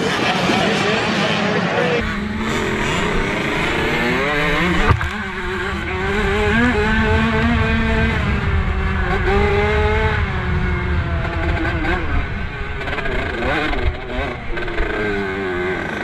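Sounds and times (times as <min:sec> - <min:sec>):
motocross bike engines revving: 0:00.0 - 0:16.0
sharp knock: 0:04.8 - 0:05.2.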